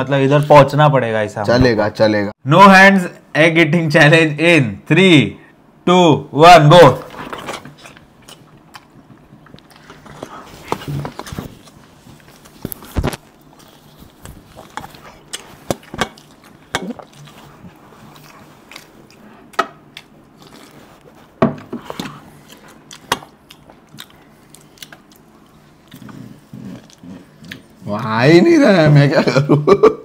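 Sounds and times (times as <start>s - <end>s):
people chewing and biting: 7.1s - 28.1s.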